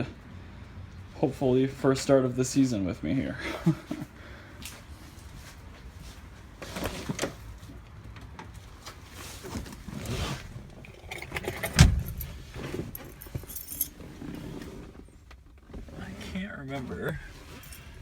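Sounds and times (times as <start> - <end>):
metallic clinks and knocks: 10.8 - 14.0.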